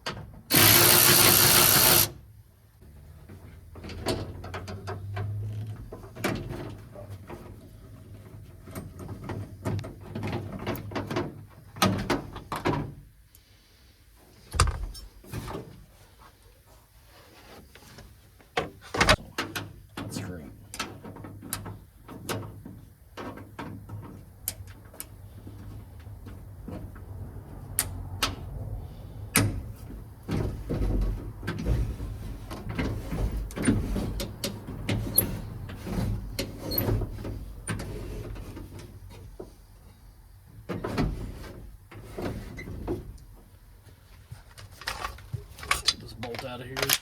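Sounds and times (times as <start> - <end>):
clicks and knocks of hand work: 44.3 - 47.0.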